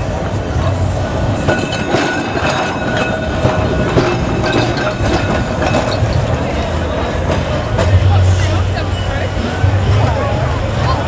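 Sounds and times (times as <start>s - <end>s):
electric tram hum: 0.0s - 11.0s
wheels clicking on rails: 0.0s - 11.0s.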